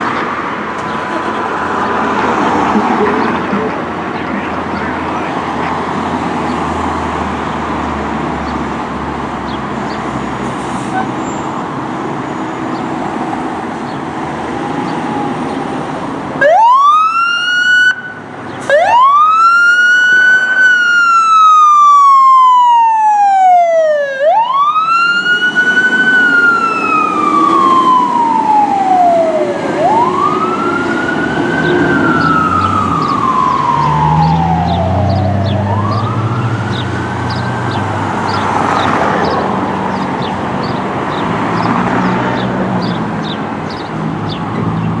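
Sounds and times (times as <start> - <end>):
engine and road rumble: 0.0 - 45.0
fire engine siren wailing: 10.1 - 45.0.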